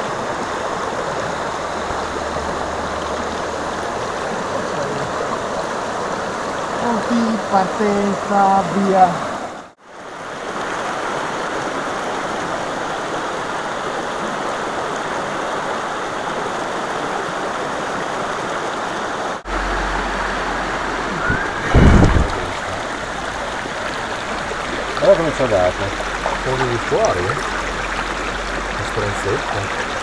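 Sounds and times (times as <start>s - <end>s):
river rushing over rocks: 0.0s - 30.0s
low rumble: 19.5s - 30.0s
low thump: 21.2s - 22.9s.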